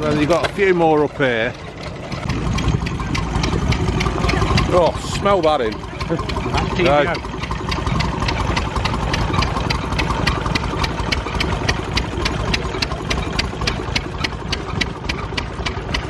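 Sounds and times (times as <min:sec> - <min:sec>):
stationary engine chugging: 0:00.0 - 0:16.0
sharp squeaky engine tick: 0:01.7 - 0:16.0.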